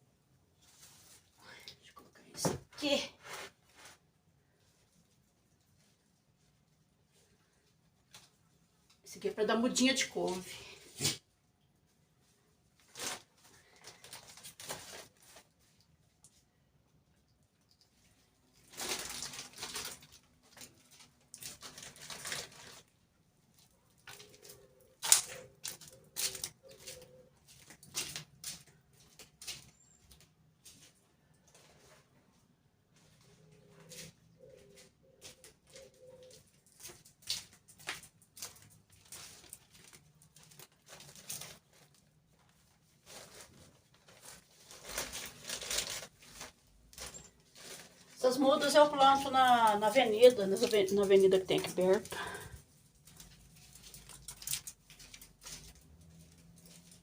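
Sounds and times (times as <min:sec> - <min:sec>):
rustling and scraping: 0:00.5 - 0:01.4, 0:02.2 - 0:09.0, 0:10.2 - 0:16.6, 0:17.9 - 0:57.0
dove cooing: 0:24.2 - 0:27.4, 0:33.5 - 0:36.5.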